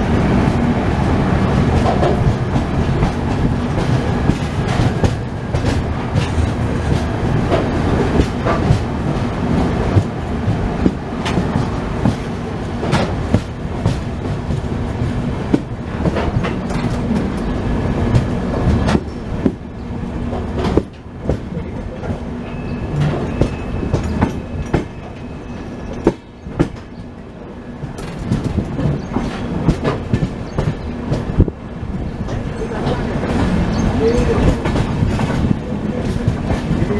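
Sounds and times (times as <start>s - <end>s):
train rumbling on track: 0.0s - 36.9s
wheels clicking over rail joints: 1.6s - 19.6s, 27.8s - 36.9s.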